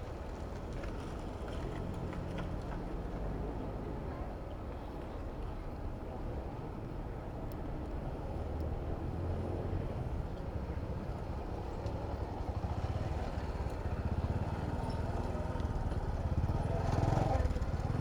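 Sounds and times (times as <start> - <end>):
low rumble of traffic: 0.0 - 18.0.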